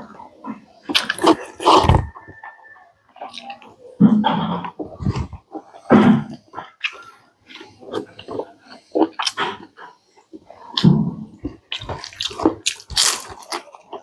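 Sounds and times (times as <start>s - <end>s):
wet chewing and lip-smacking: 0.8s - 2.4s, 3.2s - 14.0s.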